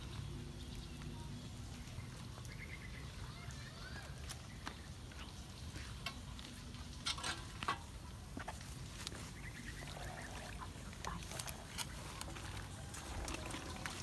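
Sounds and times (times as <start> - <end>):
water gurgling in a drain: 13.0 - 14.0.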